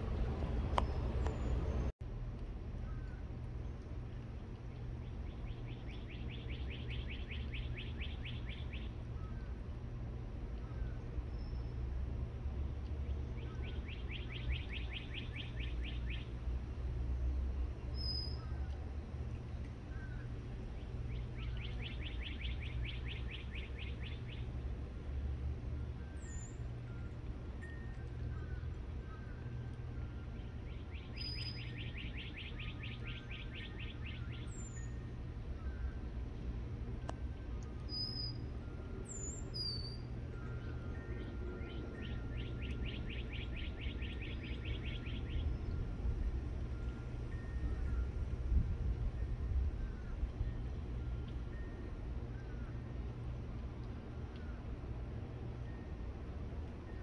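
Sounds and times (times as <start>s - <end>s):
songbird trilling: 5.0s - 9.6s, 13.3s - 16.4s, 17.8s - 24.6s, 26.0s - 36.1s, 37.7s - 48.2s
bird trilling: 21.1s - 24.4s, 30.1s - 36.0s, 37.9s - 45.6s.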